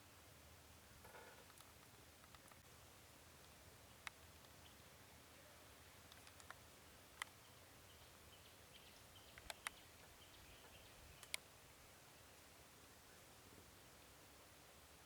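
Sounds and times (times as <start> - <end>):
faint hiss: 0.0 - 15.0
sharp short clicks: 9.3 - 9.8.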